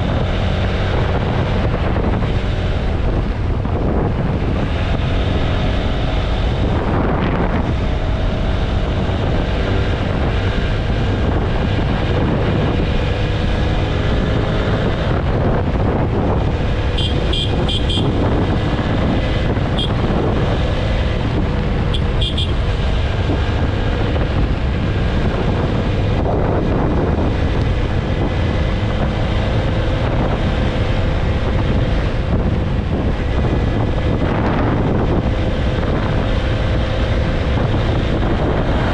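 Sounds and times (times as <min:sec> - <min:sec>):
motorcycle engine running: 0:00.0 - 0:38.9
wind rush on microphone: 0:00.0 - 0:38.9
horn beeps: 0:17.0 - 0:18.3, 0:19.7 - 0:20.1, 0:21.9 - 0:22.7.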